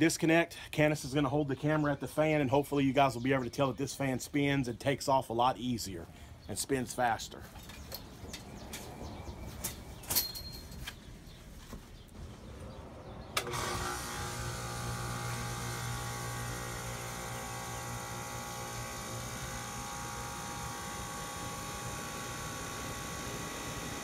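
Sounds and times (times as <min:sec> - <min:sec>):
condensing unit humming: 0:12.9 - 0:24.0.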